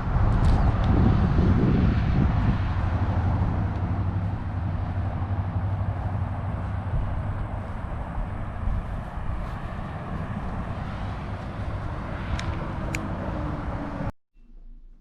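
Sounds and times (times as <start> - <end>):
car road and engine rumble: 0.0 - 14.1.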